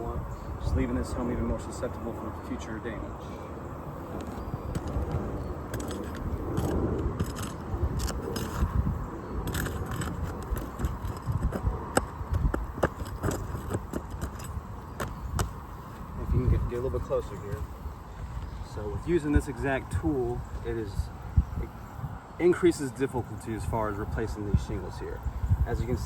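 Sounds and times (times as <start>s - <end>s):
metal tool scraping roof shingles: 4.8s - 8.8s, 9.4s - 15.2s.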